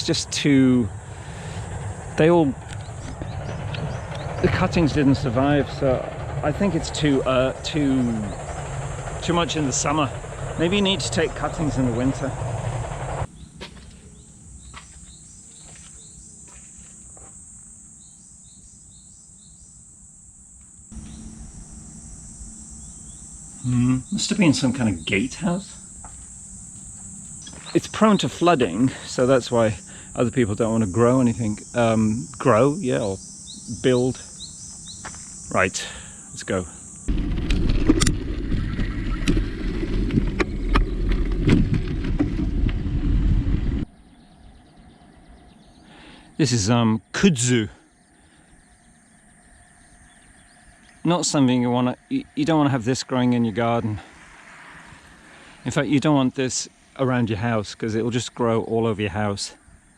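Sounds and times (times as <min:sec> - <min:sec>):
wind rumbling on microphone: 0:00.0 - 0:13.4, 0:36.2 - 0:45.8
insects droning: 0:00.0 - 0:59.9.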